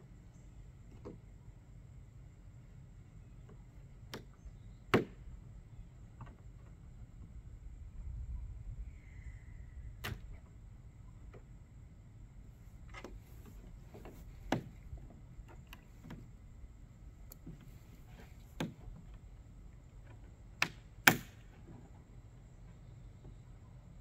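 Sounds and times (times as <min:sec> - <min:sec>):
hard plastic clicks and knocks: 0:12.9 - 0:16.3, 0:18.4 - 0:19.2, 0:20.0 - 0:21.9.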